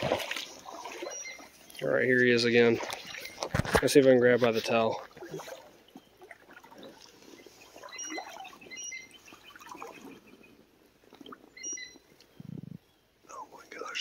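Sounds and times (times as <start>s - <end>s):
water sloshing around legs: 0.0s - 12.4s
faint bird chirps: 0.7s - 1.6s, 6.8s - 10.6s, 11.5s - 14.0s.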